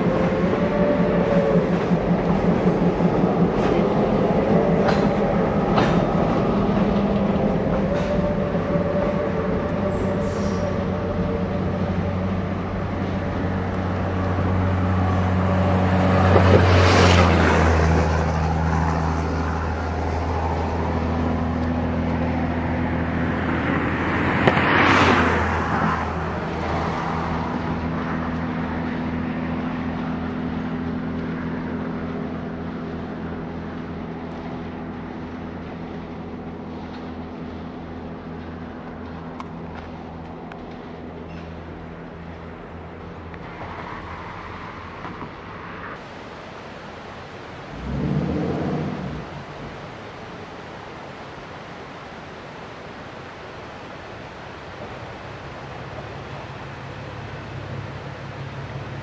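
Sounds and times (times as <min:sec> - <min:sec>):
steady engine hum: 0:00.0 - 0:59.0
train running on rails: 0:00.0 - 0:59.0.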